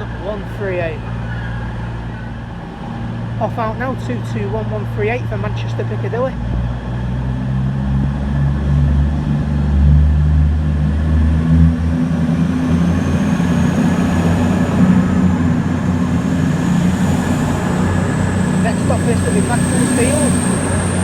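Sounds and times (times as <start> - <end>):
diesel train engines humming: 0.0 - 21.0
faint high whine: 13.2 - 21.0.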